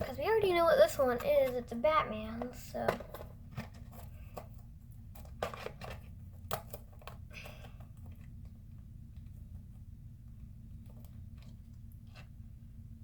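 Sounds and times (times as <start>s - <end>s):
cardboard and plastic rustling: 0.0s - 9.6s
steady low hum: 0.0s - 13.0s.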